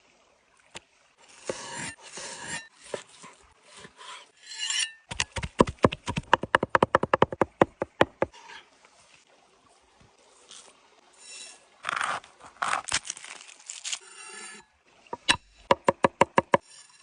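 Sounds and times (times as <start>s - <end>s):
rasping scrapes: 1.3s - 5.0s.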